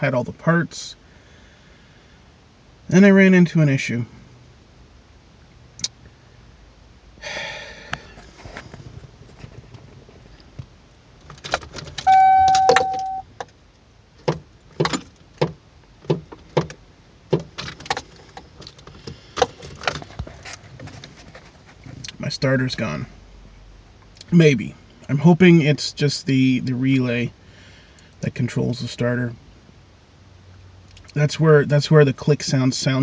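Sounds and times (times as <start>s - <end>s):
loud beep: 12.0s - 13.2s.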